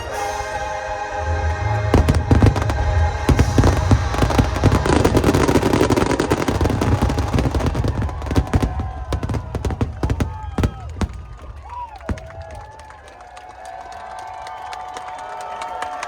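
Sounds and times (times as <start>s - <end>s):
music: 0.0s - 8.3s
fireworks cracking and booming: 1.8s - 13.0s.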